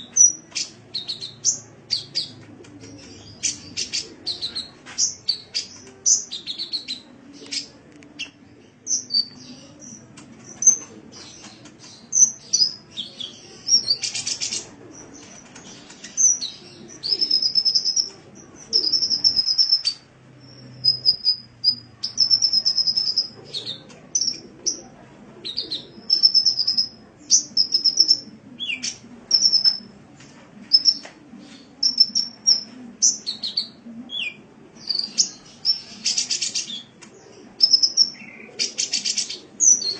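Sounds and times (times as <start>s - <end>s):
sunbird song: 15.7s - 18.1s, 18.7s - 24.8s, 25.4s - 29.8s, 30.7s - 31.0s, 31.8s - 36.9s, 37.6s - 39.9s.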